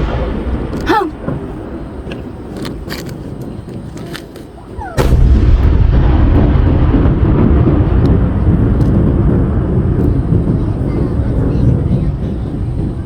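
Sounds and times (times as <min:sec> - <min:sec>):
low rumble of fireworks: 0:00.0 - 0:13.0
firework shell boom: 0:05.0 - 0:10.1.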